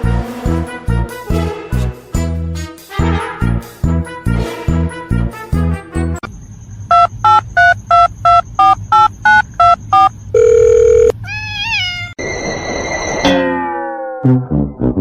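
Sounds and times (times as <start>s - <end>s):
music: 0.0s - 6.2s, 14.2s - 15.0s
steady phone tone: 6.9s - 11.1s, 12.2s - 13.6s
touch-tone keypad beeps: 6.9s - 11.1s
brief warbling tone: 12.2s - 14.8s.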